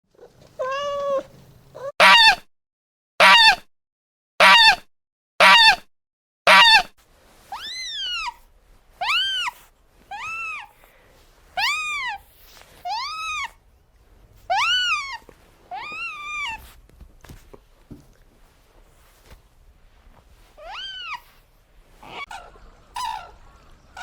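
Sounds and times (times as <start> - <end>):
cat meowing: 0.5 - 2.4, 14.5 - 16.7, 20.6 - 21.4.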